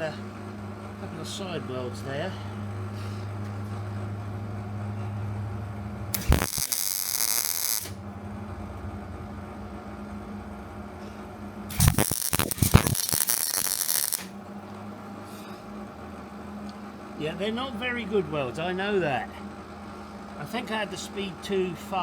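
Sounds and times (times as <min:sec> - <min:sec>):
welder crackling: 0:06.1 - 0:08.0, 0:11.7 - 0:14.4
welder hum: 0:06.1 - 0:08.1, 0:11.6 - 0:14.5.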